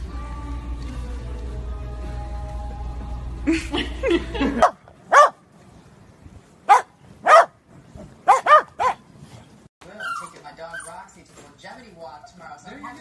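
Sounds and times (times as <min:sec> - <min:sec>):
dog barking loudly: 0:04.6 - 0:05.4, 0:06.6 - 0:09.1
dog yipping: 0:04.6 - 0:05.4, 0:06.7 - 0:07.6, 0:08.2 - 0:09.0, 0:09.9 - 0:11.0.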